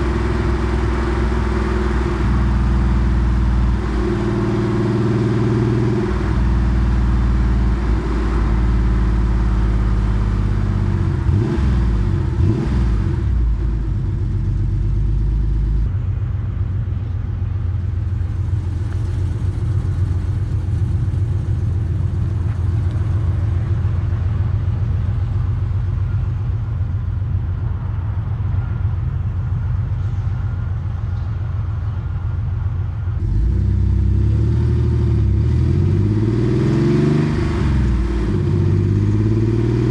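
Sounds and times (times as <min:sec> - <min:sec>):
low rumbling engine pulses: 0:00.0 - 0:35.4
car engine revving: 0:03.3 - 0:13.6, 0:16.0 - 0:27.8.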